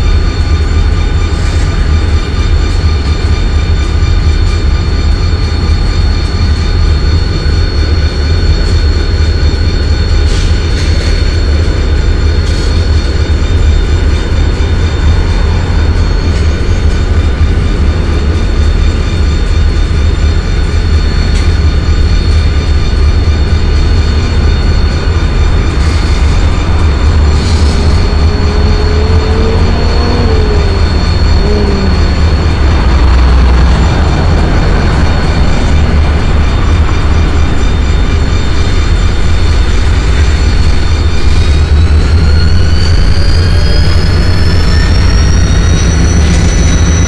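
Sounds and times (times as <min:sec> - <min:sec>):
freight train rumbling: 0:00.0 - 0:47.0
thin high tone: 0:25.9 - 0:47.0.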